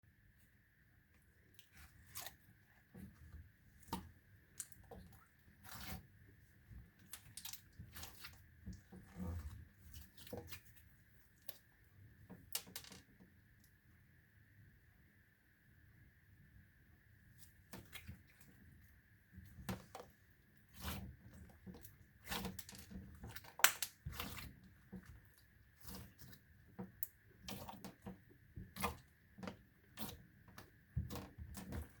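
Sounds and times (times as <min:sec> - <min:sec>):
slime crackling and popping: 0:23.5 - 0:24.2.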